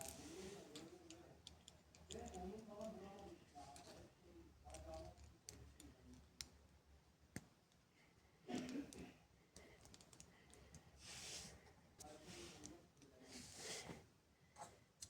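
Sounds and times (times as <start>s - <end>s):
faint clicks and taps: 0.0s - 4.0s, 4.6s - 7.9s, 8.5s - 10.9s, 11.5s - 13.2s.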